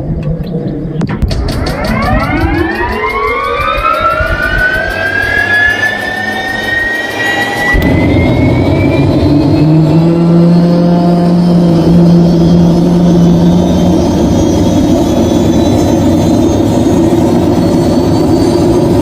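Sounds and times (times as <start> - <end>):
deep engine rumble: 0.0 - 19.0
turbine engine whine: 0.0 - 19.0.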